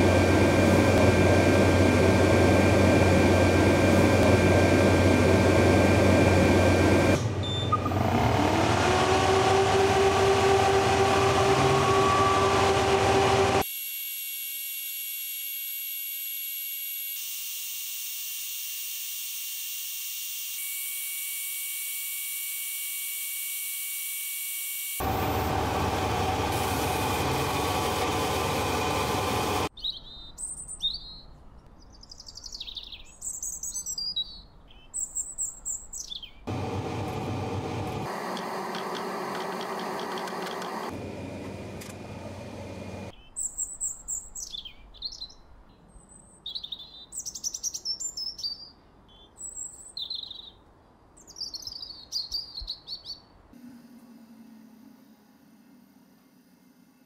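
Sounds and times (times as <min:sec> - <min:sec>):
loud rushing machine noise: 0:00.0 - 0:13.6, 0:25.0 - 0:29.7, 0:36.5 - 0:43.1
small birds chirping: 0:29.8 - 0:36.4, 0:43.2 - 0:50.6, 0:51.2 - 0:53.3.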